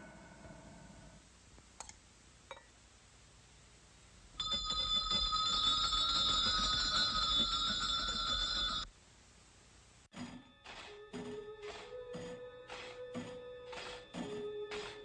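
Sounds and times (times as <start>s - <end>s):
bell ringing rapidly: 4.4s - 8.9s.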